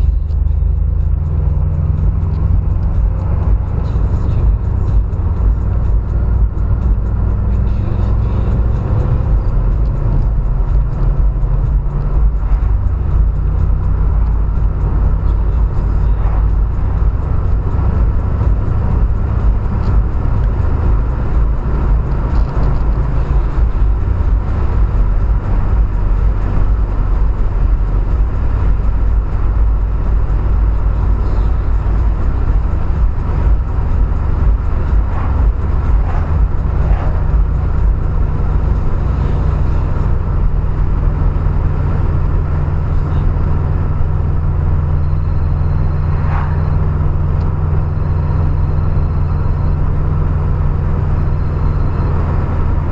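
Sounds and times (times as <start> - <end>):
car engine running: 0.0 - 52.9.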